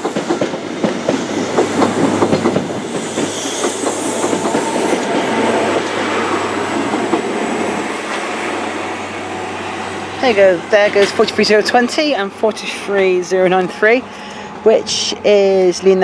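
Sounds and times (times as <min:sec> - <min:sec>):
train wheels clicking over rail joints: 0:00.0 - 0:08.5, 0:10.3 - 0:14.4
rumble of passing train: 0:00.0 - 0:16.0.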